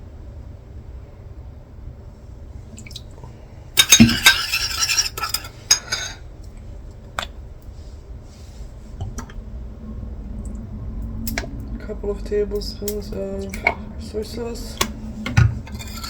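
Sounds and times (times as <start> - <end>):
spoon clinking against bowl: 3.8 - 6.1.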